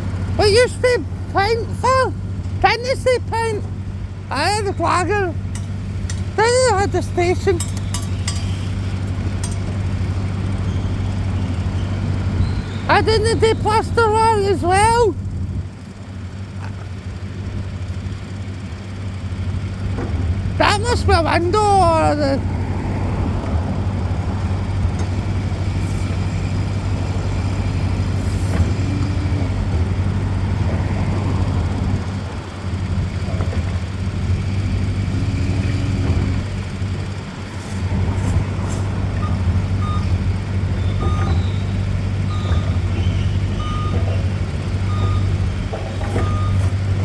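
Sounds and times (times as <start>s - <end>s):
heavy vehicle engine humming: 0.0s - 47.0s
reversing alarm beeps: 39.2s - 40.1s, 40.8s - 44.0s, 44.9s - 45.3s, 46.2s - 46.7s.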